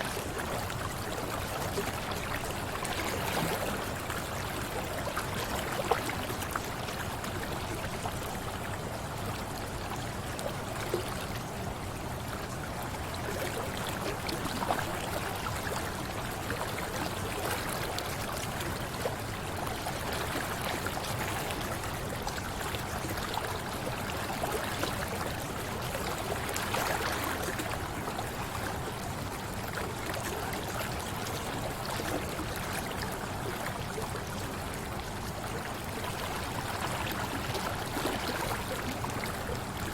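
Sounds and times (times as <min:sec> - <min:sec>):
river water rushing and gurgling: 0:00.0 - 0:39.9
water splashes: 0:35.5 - 0:39.9.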